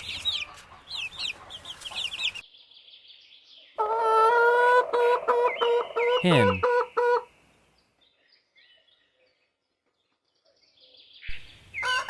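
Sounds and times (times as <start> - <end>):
chicks peeping: 0.0 - 7.4, 8.1 - 12.0
chicken calling: 3.8 - 7.3, 11.8 - 12.0.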